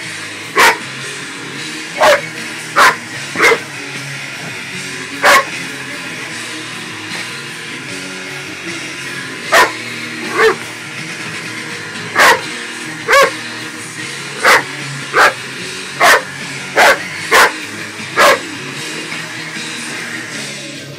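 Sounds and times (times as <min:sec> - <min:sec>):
hairdryer: 0:00.0 - 0:20.9
dog barking: 0:00.6 - 0:00.8, 0:02.0 - 0:02.2, 0:02.8 - 0:03.6, 0:05.2 - 0:05.5, 0:09.5 - 0:10.6, 0:12.2 - 0:12.4, 0:13.1 - 0:13.3, 0:14.4 - 0:15.4, 0:16.0 - 0:17.6, 0:18.2 - 0:18.4.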